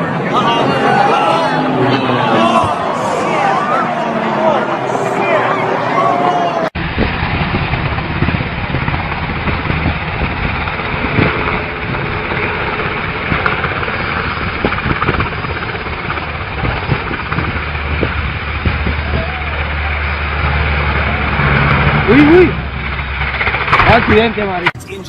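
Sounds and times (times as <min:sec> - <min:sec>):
rushing wind noise: 0:00.0 - 0:24.1
light aircraft engine running: 0:06.8 - 0:25.0.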